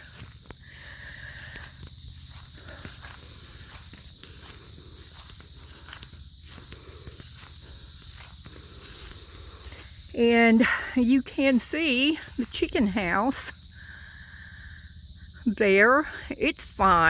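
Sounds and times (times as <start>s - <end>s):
footsteps on grass: 0.0s - 10.8s
insects trilling: 0.0s - 17.0s.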